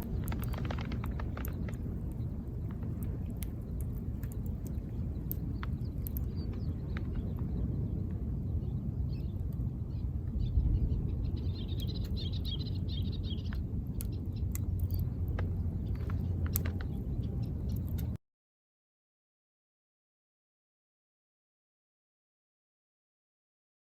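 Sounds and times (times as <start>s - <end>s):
campfire crackling: 0.0s - 8.4s, 9.3s - 18.2s
high bird chirps: 4.6s - 15.2s.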